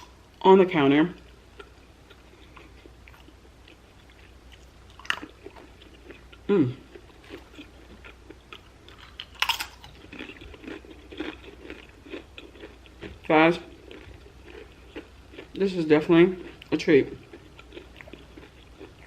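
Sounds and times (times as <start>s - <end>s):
chewing food: 0.0s - 0.4s, 1.0s - 19.0s
crunchy bite: 8.9s - 12.8s.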